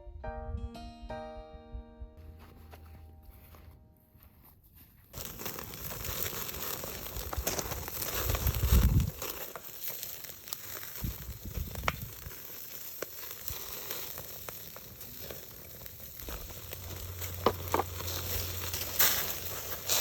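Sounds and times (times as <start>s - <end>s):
crackles and pops: 5.1s - 20.0s
food sizzling: 5.2s - 20.0s.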